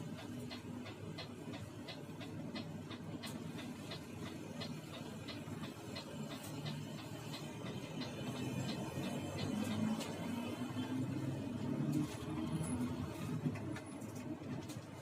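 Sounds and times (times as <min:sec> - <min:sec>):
sharp regular ticking: 0:00.0 - 0:11.5
bus engine drone: 0:00.0 - 0:15.0.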